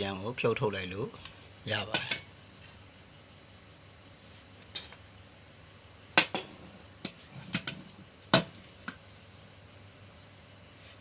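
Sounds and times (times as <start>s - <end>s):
metallic knocks and clinks: 4.7s - 5.1s, 6.2s - 8.6s.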